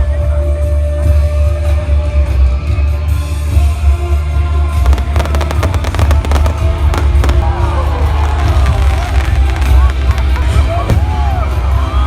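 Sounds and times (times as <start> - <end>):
fireworks cracking: 4.9 - 11.2.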